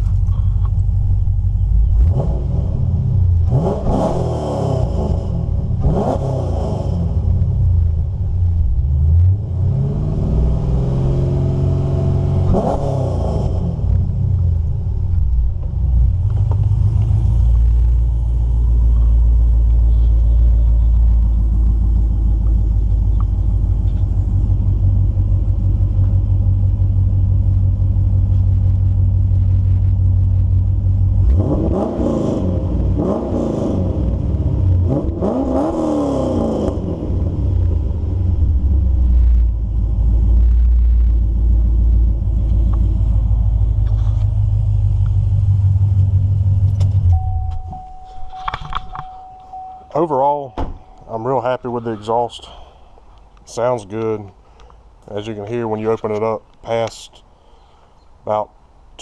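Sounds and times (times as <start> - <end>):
car engine idling with deep burble: 0.0 - 3.5, 7.1 - 9.4, 13.7 - 31.3, 37.0 - 58.3
car engine revving: 0.0 - 52.8.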